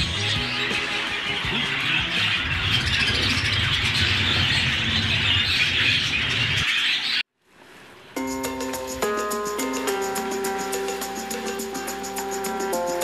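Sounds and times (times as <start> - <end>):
budgerigars chattering: 0.0 - 7.2.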